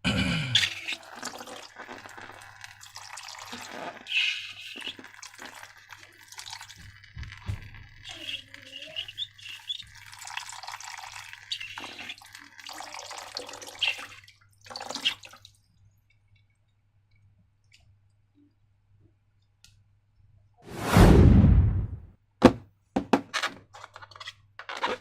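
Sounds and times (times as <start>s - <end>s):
gurgling: 0.1s - 6.3s
slime pouring and squeezing: 0.7s - 9.0s.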